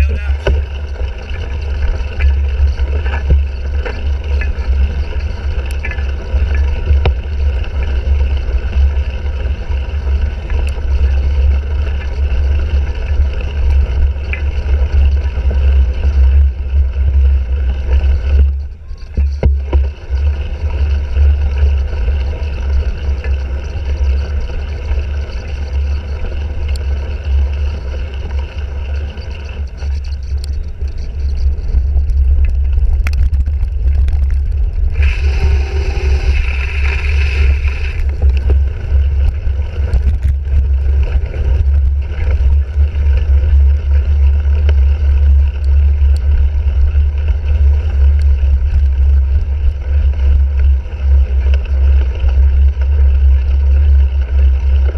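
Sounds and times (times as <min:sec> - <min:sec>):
bicycle clicks and rattles: 0:00.0 - 0:54.9
wind rumble on microphone: 0:00.0 - 0:54.9
loud hiss: 0:35.0 - 0:38.0.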